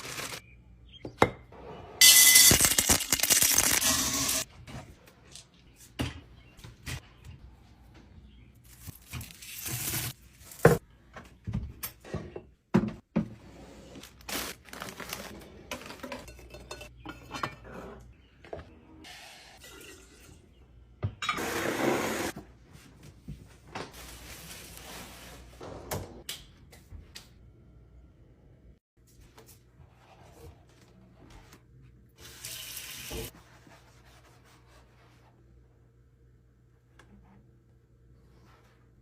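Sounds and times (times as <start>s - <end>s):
jars and dishes clinking: 15.7s - 18.0s.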